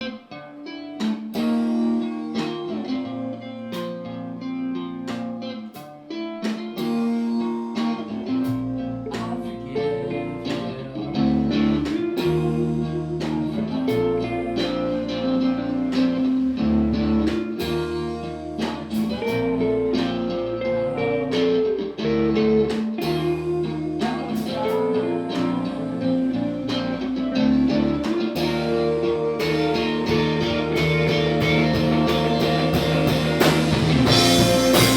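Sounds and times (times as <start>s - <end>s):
lead guitar: 0.0s - 34.9s
live band playing: 0.0s - 34.9s
deep bass: 8.6s - 34.9s
sharp drum hits: 31.9s - 34.9s.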